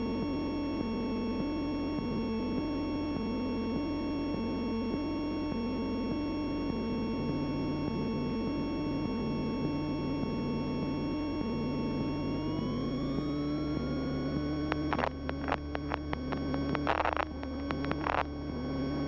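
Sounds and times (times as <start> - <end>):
sharp clicks: 14.6 - 18.3.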